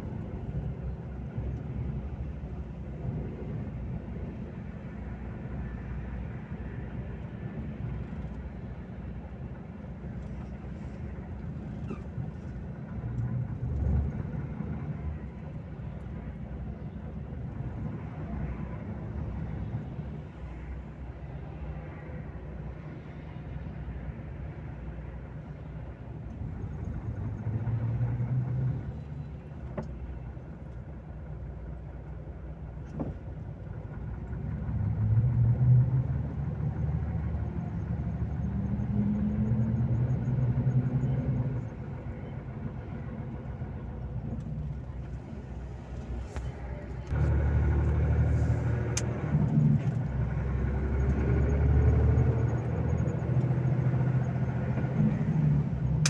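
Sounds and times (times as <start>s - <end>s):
truck diesel engine running: 31.2s - 56.0s.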